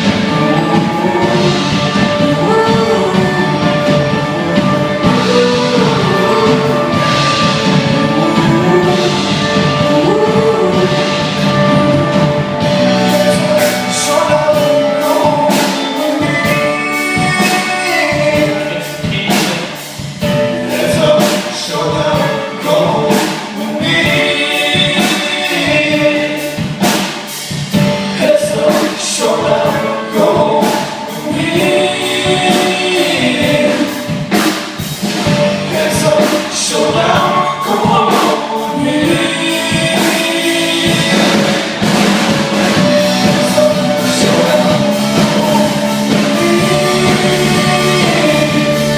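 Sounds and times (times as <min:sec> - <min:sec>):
voices singing together: 0:00.0 - 0:19.9, 0:20.6 - 0:48.9
drums: 0:00.0 - 0:48.9
live rock band: 0:00.0 - 0:48.9.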